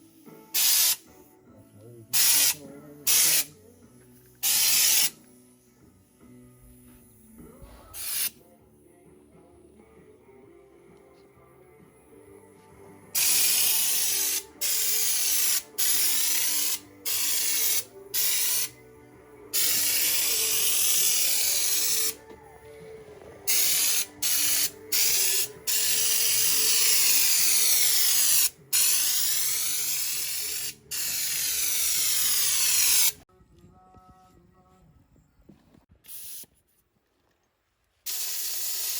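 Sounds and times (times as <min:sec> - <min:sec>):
spray gun hissing: 0:00.6 - 0:01.0, 0:02.2 - 0:03.5, 0:04.4 - 0:05.2, 0:08.0 - 0:08.3, 0:13.2 - 0:18.7, 0:19.6 - 0:22.2, 0:23.5 - 0:33.2, 0:38.1 - 0:38.9.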